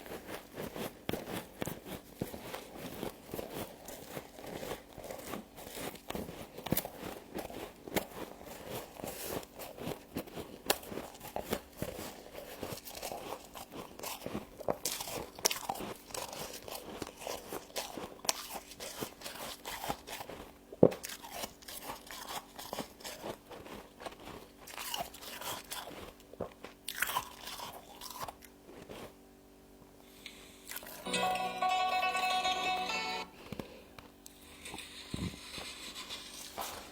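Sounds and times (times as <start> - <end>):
frost being chewed crunching: 0.0 - 29.4.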